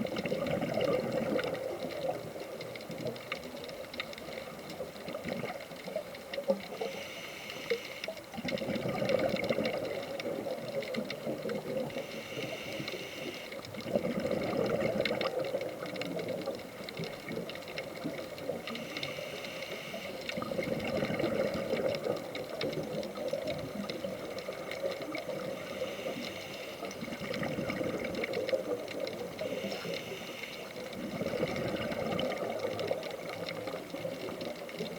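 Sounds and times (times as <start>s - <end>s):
exhaled bubbles rushing: 0.0s - 6.1s, 8.4s - 12.0s, 13.7s - 18.8s, 20.3s - 25.9s, 26.8s - 29.8s, 30.8s - 34.9s
regulator inhale hiss: 6.7s - 8.2s, 11.8s - 13.7s, 18.7s - 20.4s, 25.1s - 27.0s, 29.3s - 31.0s.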